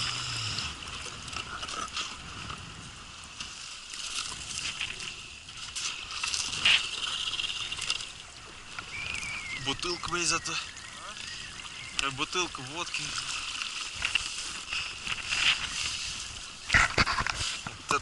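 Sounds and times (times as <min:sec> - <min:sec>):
ice crackling and scraping: 0:16.7 - 0:17.8.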